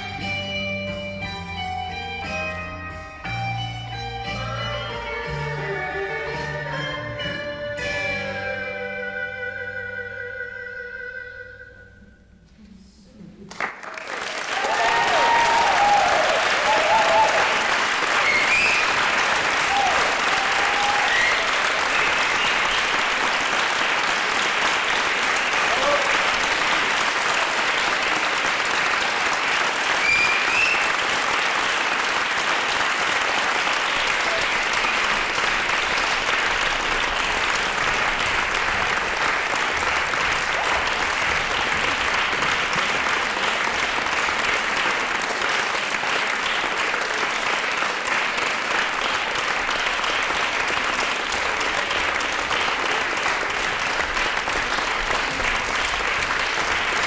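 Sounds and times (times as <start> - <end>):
large audience clapping: 13.4 - 57.0
rising whistle from crowd: 18.2 - 19.1, 20.8 - 22.8, 30.0 - 31.1.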